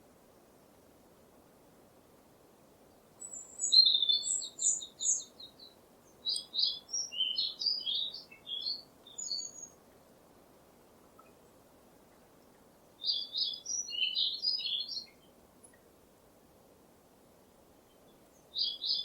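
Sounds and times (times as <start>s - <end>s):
faint steady hiss: 0.0s - 19.0s
songbird singing: 2.8s - 10.2s, 10.9s - 16.0s, 17.7s - 19.0s.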